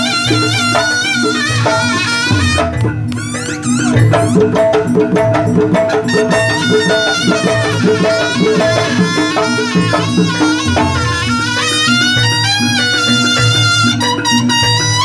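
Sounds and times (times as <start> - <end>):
drums: 0.0 - 15.0
reedy wind melody: 0.0 - 15.0
repeated pitched percussion notes: 0.0 - 15.0.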